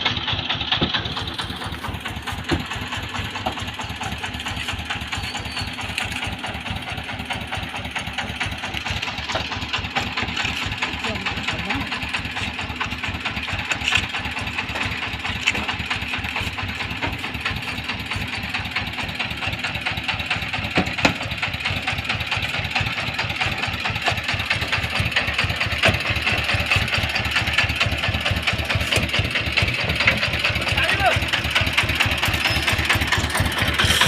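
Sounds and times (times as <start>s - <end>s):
truck engine idling: 0.0s - 34.0s.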